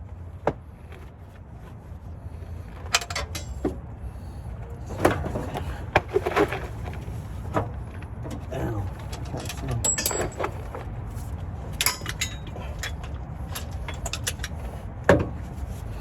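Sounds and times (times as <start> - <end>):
hand tools clinking on metal: 2.9 - 3.7, 8.4 - 10.8, 11.7 - 14.8.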